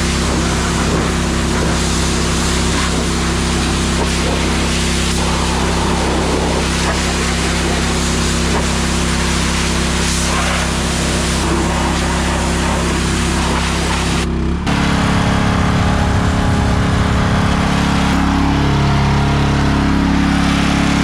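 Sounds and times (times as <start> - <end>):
steam hissing: 0.0 - 14.2
pressure washer engine hum: 0.0 - 21.0.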